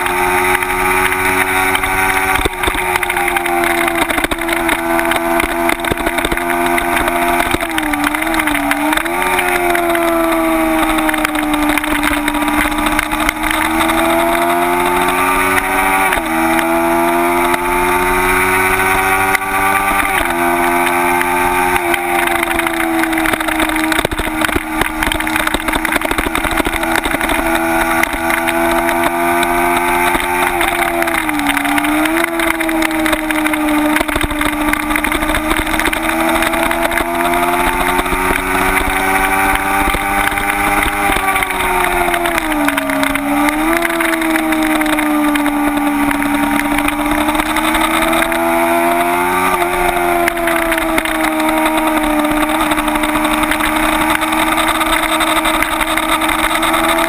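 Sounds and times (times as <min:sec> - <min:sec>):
motorcycle engine at high revs: 0:00.0 - 0:57.0
wind noise: 0:21.2 - 0:57.0.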